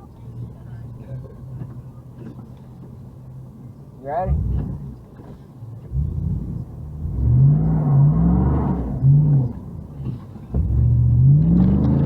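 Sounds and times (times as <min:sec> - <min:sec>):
car engine revving: 0:04.2 - 0:05.0, 0:05.8 - 0:12.0.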